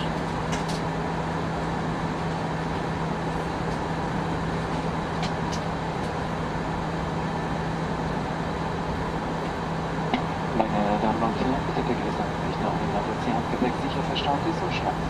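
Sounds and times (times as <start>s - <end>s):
airliner cabin noise: 0.0s - 15.0s.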